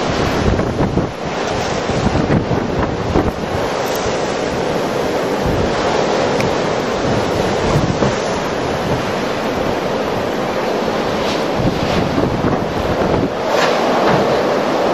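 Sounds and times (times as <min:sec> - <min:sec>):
blizzard wind buffeting microphone: 0:00.0 - 0:14.9.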